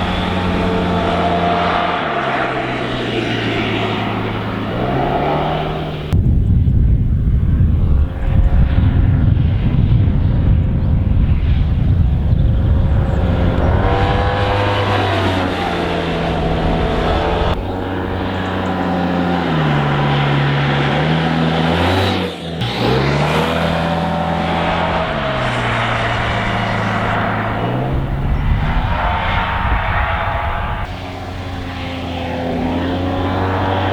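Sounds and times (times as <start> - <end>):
scooter engine revving: 0.0 - 6.2, 12.6 - 28.5.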